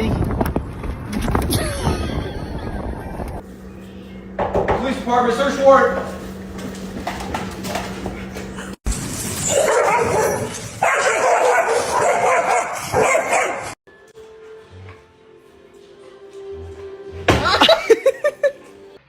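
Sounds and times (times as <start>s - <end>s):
dog barking and whining: 9.4s - 13.8s.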